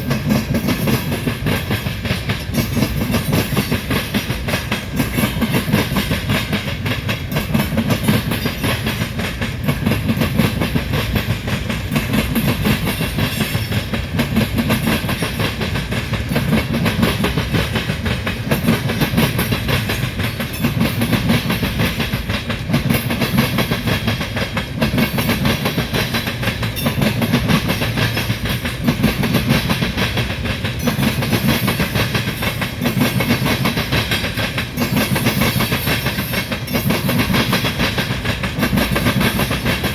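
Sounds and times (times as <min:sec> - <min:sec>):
freight train rumbling past: 0:00.0 - 0:39.9
wheels clicking over rail joints: 0:00.0 - 0:39.9.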